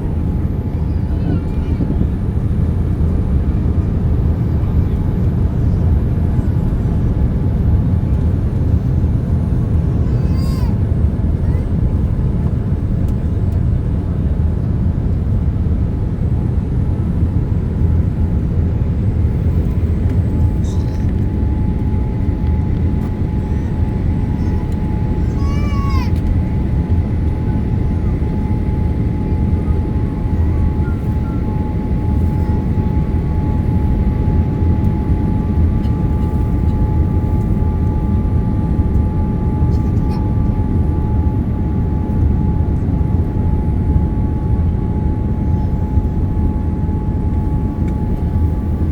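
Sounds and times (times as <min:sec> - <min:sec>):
airplane cabin rumble: 0:00.0 - 0:48.9
steady whine: 0:16.8 - 0:48.9.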